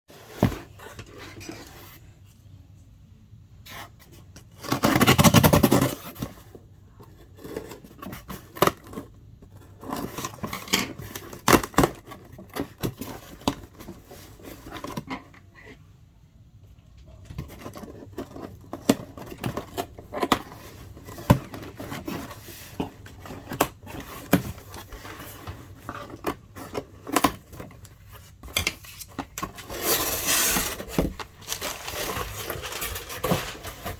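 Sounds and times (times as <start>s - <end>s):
packaging scraping and rustling: 17.3s - 33.9s.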